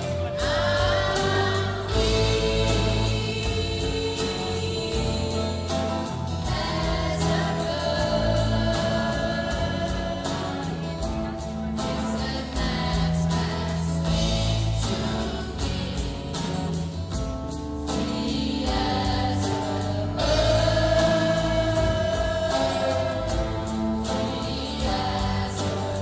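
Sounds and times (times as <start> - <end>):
choir singing long notes: 0.0 - 10.4.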